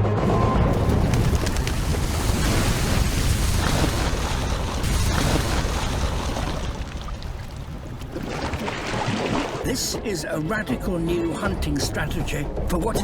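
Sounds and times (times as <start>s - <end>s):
water splashing and churning: 0.6s - 10.7s.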